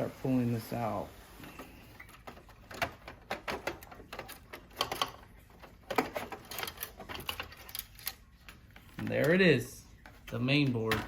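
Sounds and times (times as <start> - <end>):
plastic and metal parts rattling: 2.0 - 11.0.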